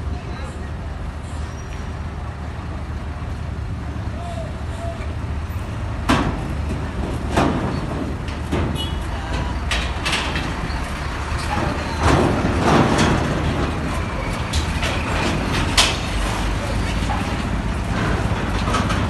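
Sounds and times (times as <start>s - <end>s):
heavy truck engines rumbling: 0.0s - 19.0s
sharp metal clanks and knocks: 11.4s - 19.0s.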